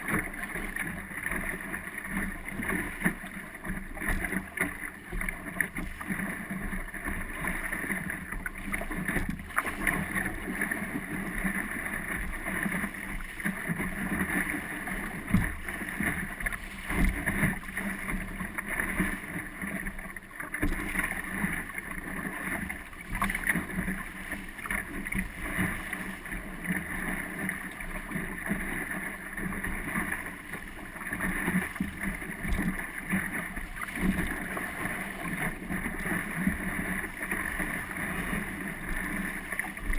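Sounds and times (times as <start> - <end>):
water washing along boat hull: 0.0 - 39.9
boat knocks: 12.0 - 26.8, 31.2 - 38.5.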